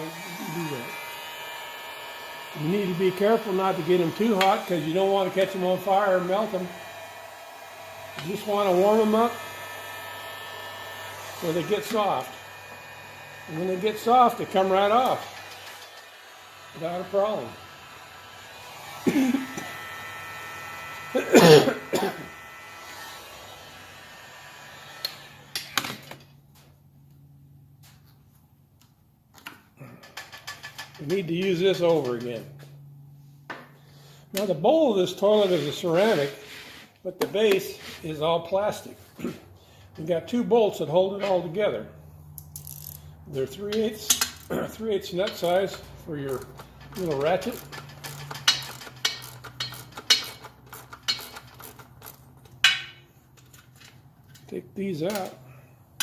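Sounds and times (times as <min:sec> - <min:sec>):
hand ratchet clinking: 0:45.2 - 0:53.6.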